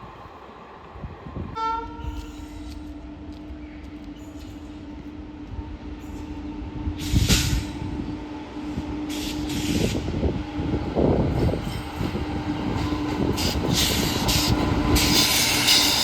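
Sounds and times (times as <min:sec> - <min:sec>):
train rumble: 0:00.0 - 0:16.0.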